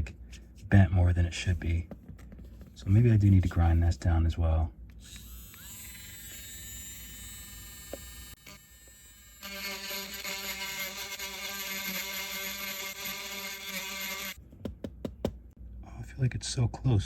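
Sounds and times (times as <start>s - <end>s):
rotary tool grinding: 5.0s - 14.4s.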